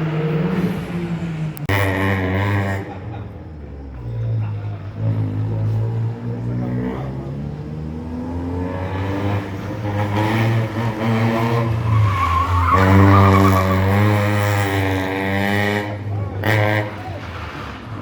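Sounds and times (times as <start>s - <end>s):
rally car engine revving: 0.0s - 18.0s
tyres squealing: 8.8s - 14.6s.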